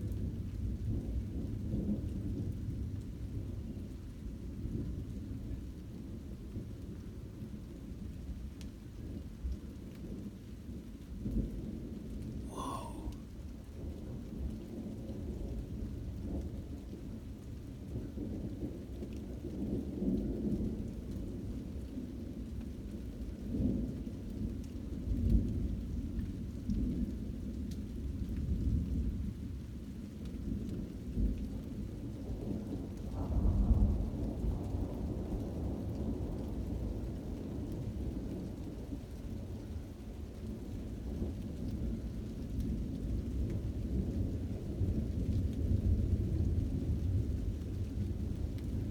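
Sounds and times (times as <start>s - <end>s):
rain falling: 0.0s - 25.6s, 27.1s - 48.9s.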